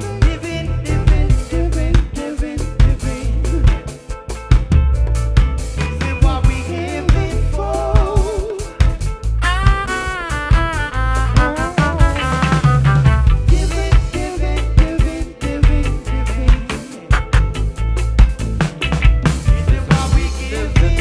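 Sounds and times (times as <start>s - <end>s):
drum kit and bass beat: 0.0s - 21.0s
sliding lead melody: 9.3s - 14.4s, 17.0s - 21.0s.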